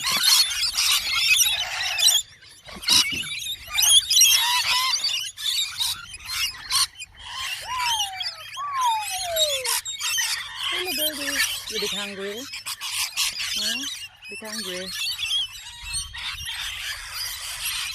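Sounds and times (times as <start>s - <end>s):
flock of birds chirping: 0.0s - 17.9s
falling whistle: 7.6s - 9.8s.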